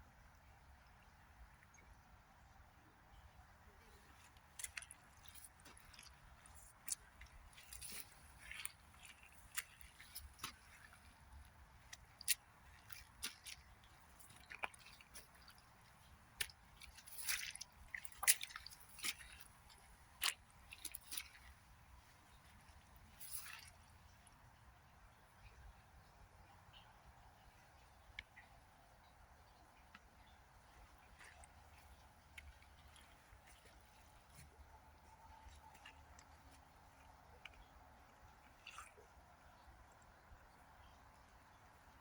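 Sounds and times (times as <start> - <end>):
faint water trickle: 0.0 - 42.0
water drips and splashes: 0.2 - 42.0.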